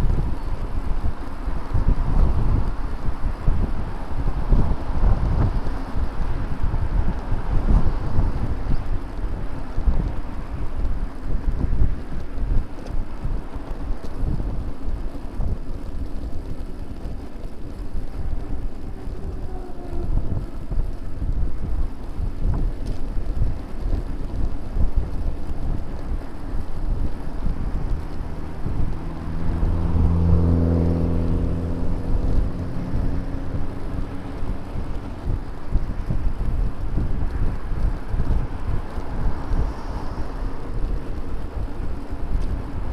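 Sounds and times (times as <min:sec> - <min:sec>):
wind buffeting microphone: 0:00.0 - 0:42.9
motor vehicle passing: 0:25.4 - 0:42.9.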